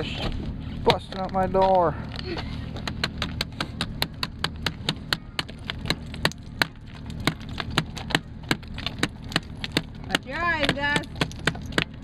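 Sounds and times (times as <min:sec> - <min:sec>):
low steady rumble: 0:00.0 - 0:12.0
ice chipping knocks: 0:02.8 - 0:12.0.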